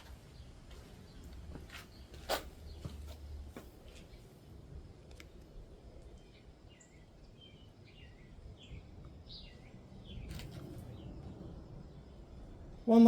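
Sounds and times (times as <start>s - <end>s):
faint bird chirps: 5.6s - 12.3s.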